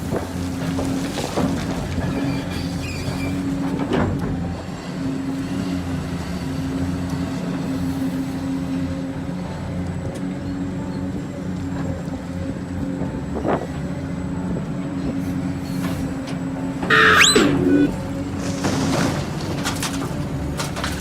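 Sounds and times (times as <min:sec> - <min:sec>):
electric motors humming: 0:16.9 - 0:18.2.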